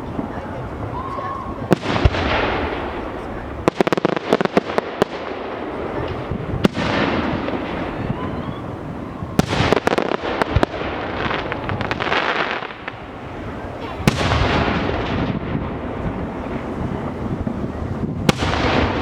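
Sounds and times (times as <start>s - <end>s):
fireworks bangs: 0.0s - 19.0s
fireworks crackling hiss: 0.0s - 19.0s.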